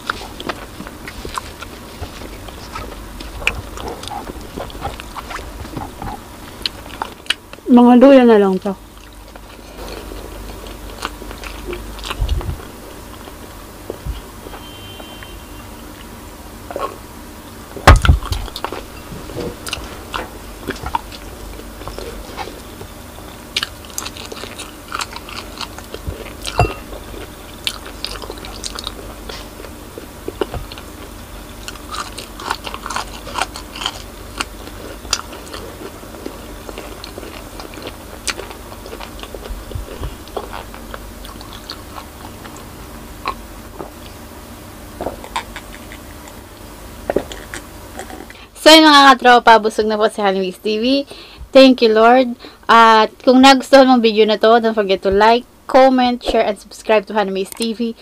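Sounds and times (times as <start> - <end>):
biting and chewing: 0.0 - 7.6, 8.9 - 14.0, 17.8 - 44.2, 45.0 - 48.4.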